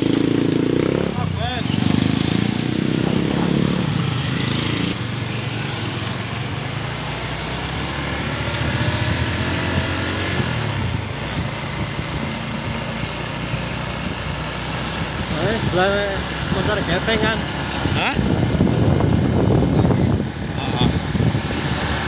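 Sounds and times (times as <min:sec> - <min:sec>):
road and traffic noise: 0:00.0 - 0:22.0.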